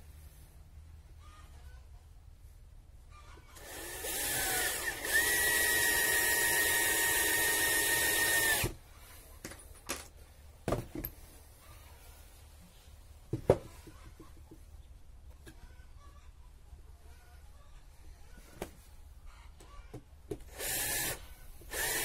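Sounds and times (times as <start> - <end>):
electric drill running: 3.6 - 8.8, 20.5 - 22.0.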